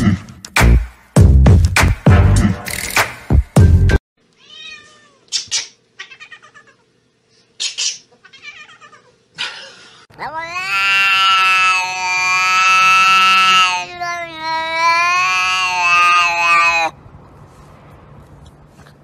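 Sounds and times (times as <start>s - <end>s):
music with a beat: 0.5s - 4.0s
pet whining or meowing: 4.4s - 5.3s, 6.0s - 6.8s, 8.2s - 9.2s, 10.2s - 17.0s.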